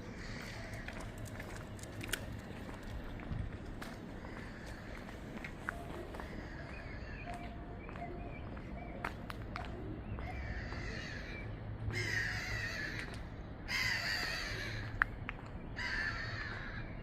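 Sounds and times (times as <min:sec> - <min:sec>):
crow cawing: 0:00.1 - 0:01.0, 0:04.2 - 0:05.2, 0:06.2 - 0:07.2, 0:10.2 - 0:15.0, 0:15.8 - 0:17.0.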